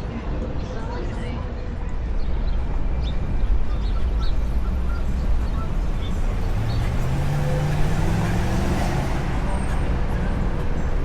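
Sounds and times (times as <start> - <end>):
low rumble of street noise: 0.0 - 11.0
vehicle engine accelerating: 5.5 - 11.0.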